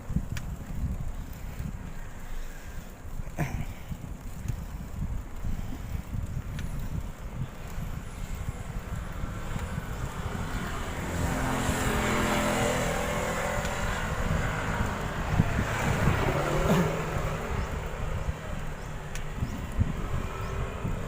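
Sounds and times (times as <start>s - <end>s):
wind rumble on microphone: 0.0s - 21.0s
motor vehicle passing: 4.2s - 21.0s.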